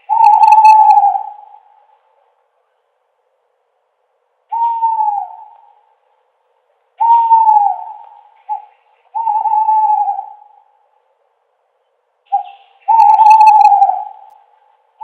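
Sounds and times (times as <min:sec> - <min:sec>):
owl hooting: 0:00.0 - 0:02.0, 0:04.5 - 0:06.0, 0:07.0 - 0:10.8, 0:12.3 - 0:14.7.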